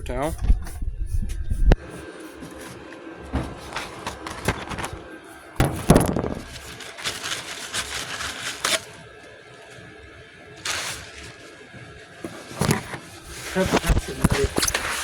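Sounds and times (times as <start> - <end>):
paper towel rubbing on panel: 12.3 - 15.0.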